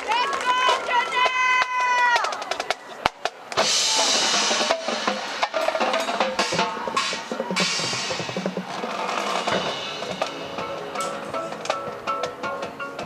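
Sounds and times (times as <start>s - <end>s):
marching band drums: 0.0s - 13.0s
band held notes: 3.4s - 13.0s.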